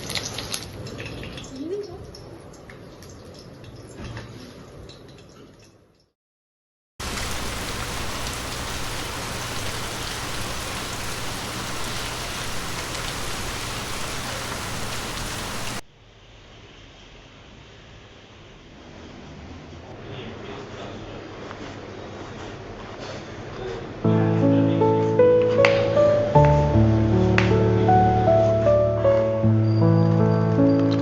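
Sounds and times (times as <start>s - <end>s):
heavy rain: 7.0s - 15.8s
water running with drips: 7.0s - 15.8s.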